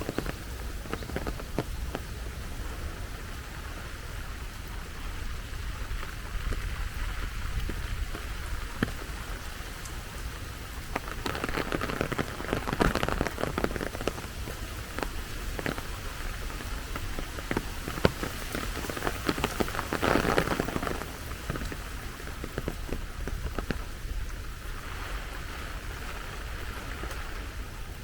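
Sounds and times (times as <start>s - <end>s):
rain falling: 0.0s - 28.0s
raindrops ticking close by: 0.0s - 28.0s.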